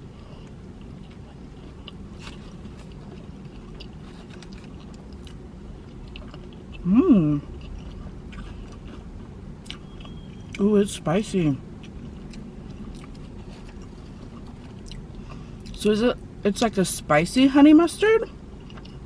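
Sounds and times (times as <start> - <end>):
person chewing food: 0.0 - 10.6, 11.8 - 15.8, 18.5 - 19.0.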